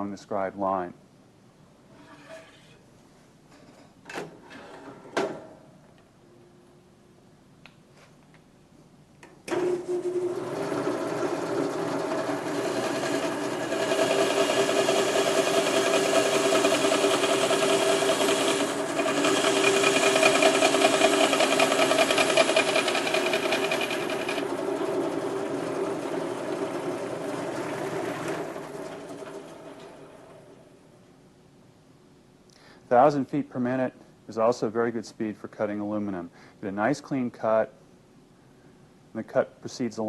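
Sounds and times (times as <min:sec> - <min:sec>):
band saw cutting metal: 0:10.5 - 0:29.9.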